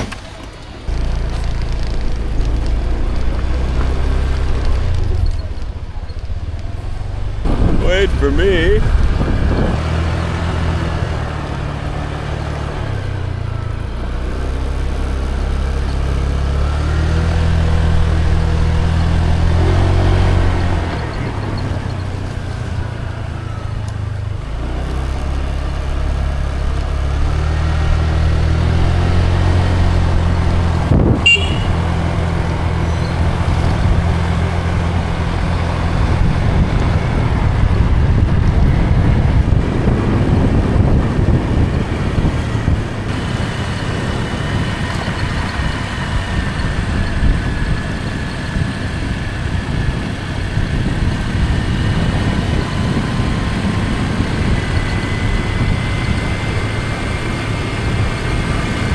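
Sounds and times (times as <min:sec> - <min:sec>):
motor scooter engine riding: 0:00.0 - 0:58.9
wind on microphone: 0:00.9 - 0:13.2, 0:27.3 - 0:58.9.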